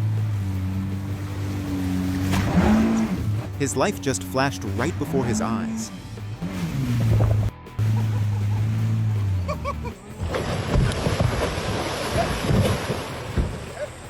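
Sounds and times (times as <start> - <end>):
sea water rushing and splashing: 0.0 - 5.8, 10.2 - 14.0.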